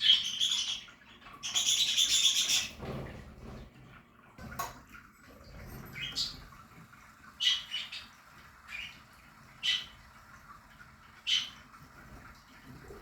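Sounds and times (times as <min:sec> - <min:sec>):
budgerigars chirping and squawking: 0:00.0 - 0:02.8, 0:05.9 - 0:06.5, 0:07.4 - 0:09.0, 0:09.6 - 0:10.0, 0:11.2 - 0:11.7.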